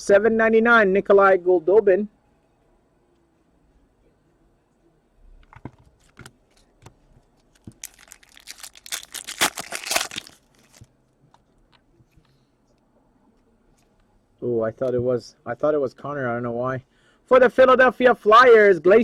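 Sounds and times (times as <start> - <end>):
card pack wrapper crinkling: 7.5 - 10.9.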